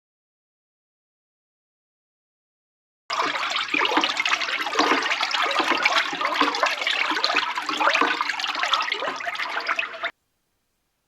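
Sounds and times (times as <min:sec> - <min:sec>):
oil pouring and splashing: 0:03.1 - 0:10.1.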